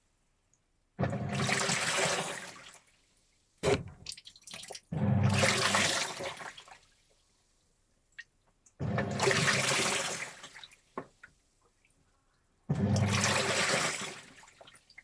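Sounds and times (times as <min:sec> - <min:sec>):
washing machine sloshing water: 0:01.0 - 0:02.9, 0:03.6 - 0:06.9, 0:08.8 - 0:10.8, 0:12.7 - 0:15.0.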